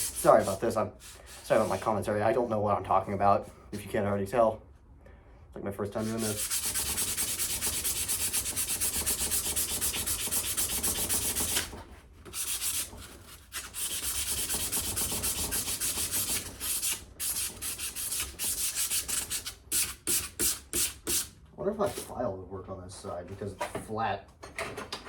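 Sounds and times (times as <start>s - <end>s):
sandpaper rubbing on steel: 0.0s - 2.0s, 6.0s - 11.7s, 12.3s - 22.1s.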